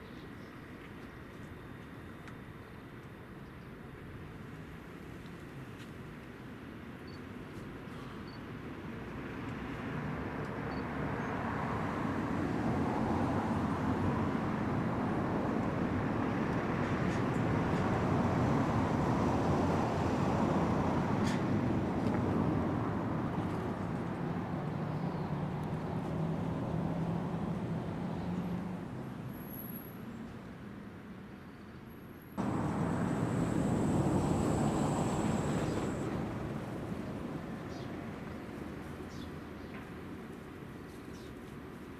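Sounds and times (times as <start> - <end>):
distant motor vehicle rumble: 10.0 - 29.8, 32.4 - 40.2
faint high whine: 32.4 - 37.0
low rumble and hiss: 32.4 - 39.0.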